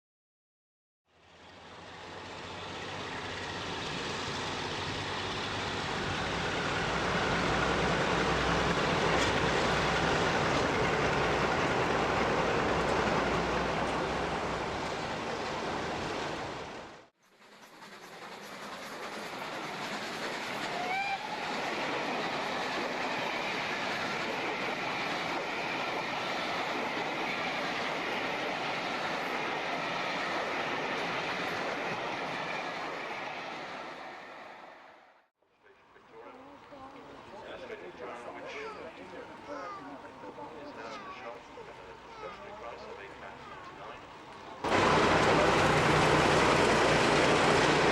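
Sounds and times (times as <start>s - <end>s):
wheels rumbling on track: 1.1s - 17.1s, 35.9s - 47.9s
locomotive engine drone: 1.2s - 17.0s, 36.2s - 47.9s.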